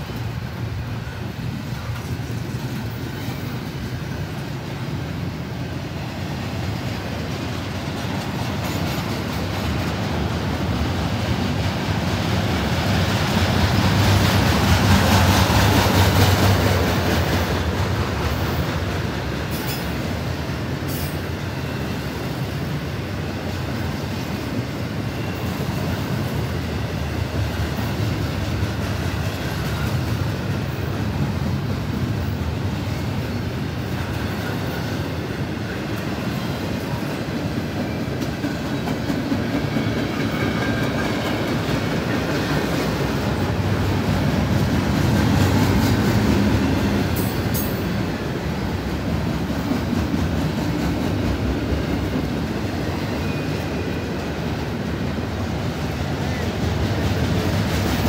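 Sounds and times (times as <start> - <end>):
freight train rumbling past: 0.0 - 58.0
wheels clattering on rails: 0.0 - 58.0.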